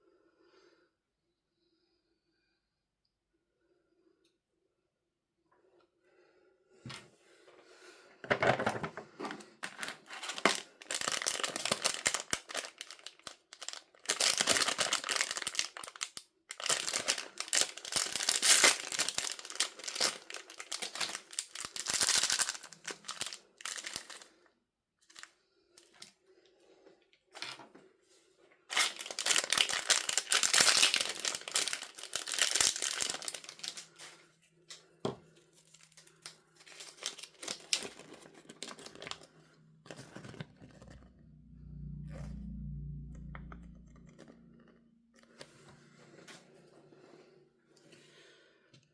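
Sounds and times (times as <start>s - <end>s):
packaging crinkling and tearing: 9.6s - 24.3s, 28.7s - 34.2s, 35.5s - 39.3s, 39.9s - 41.1s.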